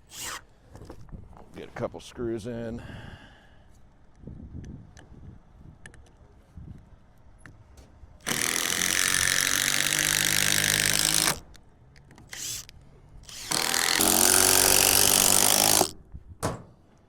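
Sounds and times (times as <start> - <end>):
cordless drill driving screws: 0.0 - 0.4, 8.2 - 11.4, 12.3 - 15.9.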